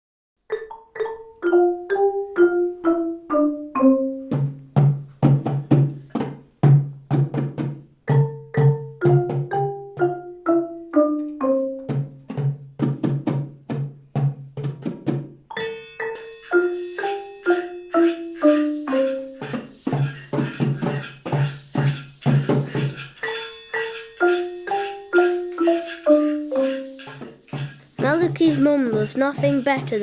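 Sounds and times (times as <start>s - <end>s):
marimba melody: 0.5s - 4.6s, 8.1s - 12.4s, 15.5s - 30.0s.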